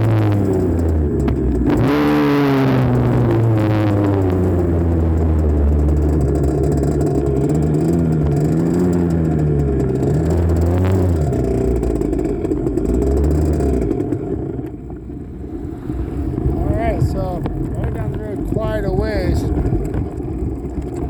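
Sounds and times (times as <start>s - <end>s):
dirt bike engine revving: 0.0s - 14.6s.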